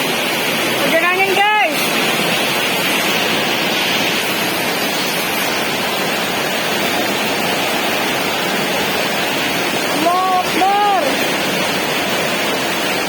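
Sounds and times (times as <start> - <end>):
heavy rain in strong wind: 0.0 - 13.0.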